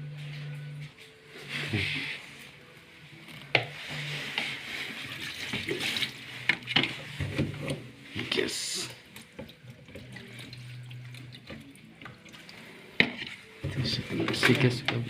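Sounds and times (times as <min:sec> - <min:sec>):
water pouring and splashing: 0:03.8 - 0:15.0.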